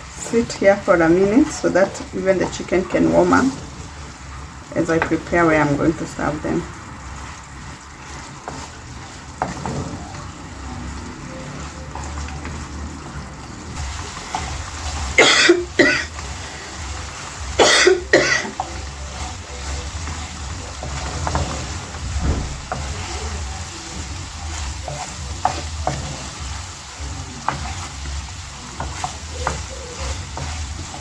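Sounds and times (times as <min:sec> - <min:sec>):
person coughing: 0:15.2 - 0:16.1, 0:17.6 - 0:18.6.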